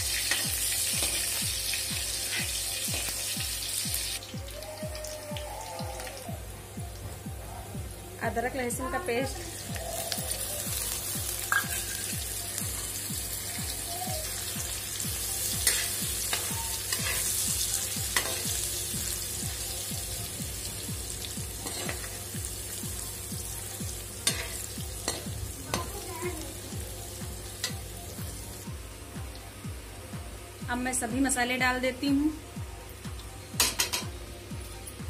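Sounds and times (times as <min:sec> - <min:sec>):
paste sizzling in hot oil: 0:00.0 - 0:04.3, 0:09.5 - 0:28.6.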